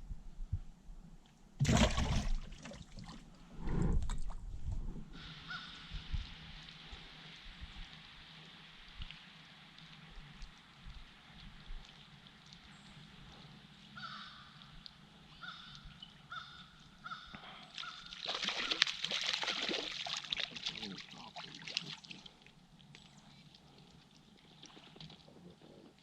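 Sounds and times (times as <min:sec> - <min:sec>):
water splashing and trickling: 0:01.6 - 0:26.0
bird cawing: 0:05.2 - 0:05.9, 0:14.0 - 0:14.6, 0:15.4 - 0:18.8.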